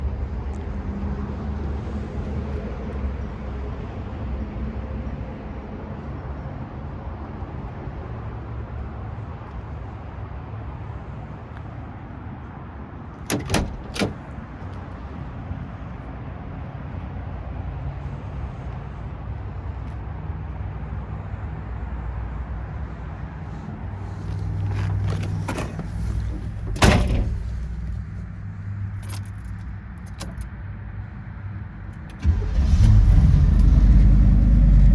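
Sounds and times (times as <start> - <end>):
car door clicks: 13.3 - 14.3, 24.2 - 28.1, 29.0 - 30.4
car door slam: 13.3 - 14.3, 24.2 - 28.0.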